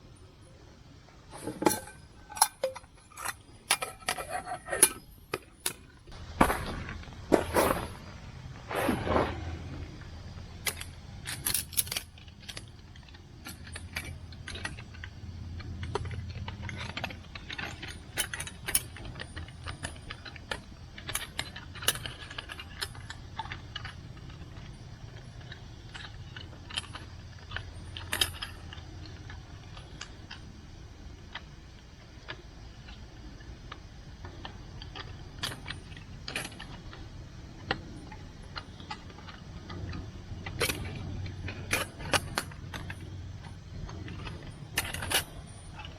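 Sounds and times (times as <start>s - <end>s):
low steady hum: 0.0s - 45.9s
metal cookware clinking: 1.3s - 5.1s.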